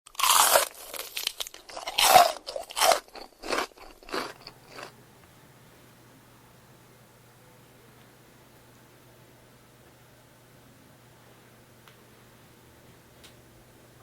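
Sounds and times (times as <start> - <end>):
crunching bites and chewing: 0.1 - 4.9.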